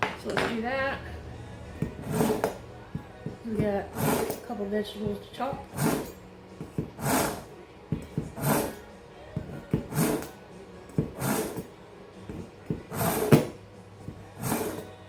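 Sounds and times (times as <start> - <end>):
knife scraping along sharpener: 1.8 - 2.6, 3.2 - 4.6, 5.5 - 11.7, 12.3 - 15.0.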